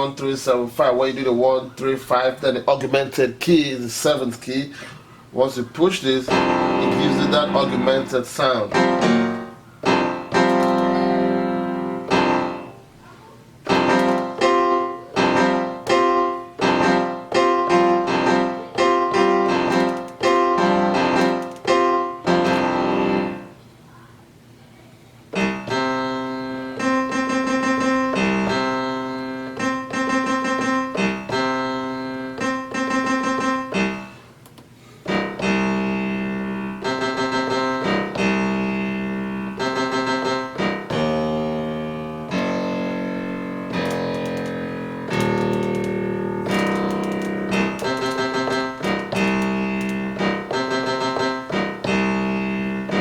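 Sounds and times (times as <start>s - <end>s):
piano-like keyboard chords: 5.4s - 24.2s, 25.2s - 53.0s.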